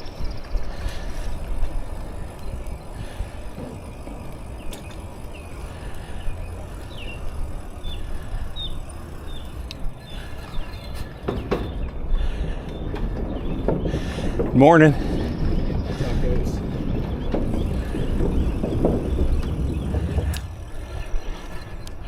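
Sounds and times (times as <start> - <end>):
bicycle tyres on path: 0.0 - 22.0
wind on microphone: 0.0 - 22.0.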